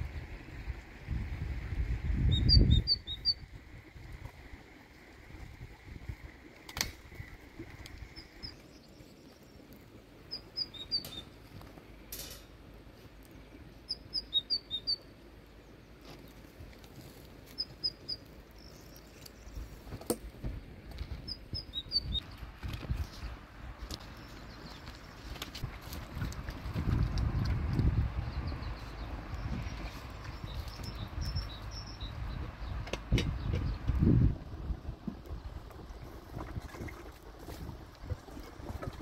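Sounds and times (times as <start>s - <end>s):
small bird singing: 2.2s - 3.4s, 10.3s - 11.4s, 13.9s - 15.9s, 17.6s - 19.7s, 21.3s - 22.3s, 28.2s - 32.8s.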